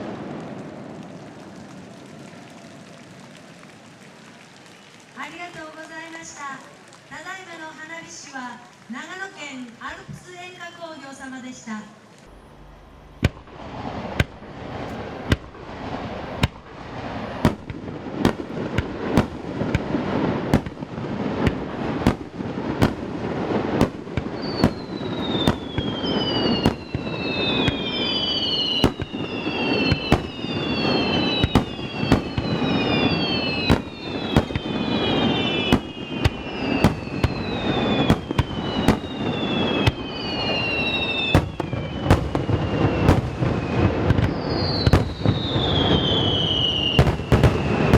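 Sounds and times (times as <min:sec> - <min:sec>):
falling firework whistles: 0:21.4 - 0:47.9.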